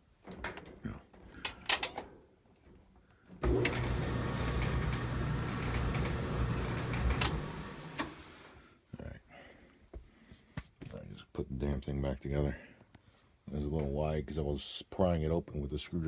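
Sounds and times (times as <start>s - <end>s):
dryer motor turning drum: 3.4s - 8.5s.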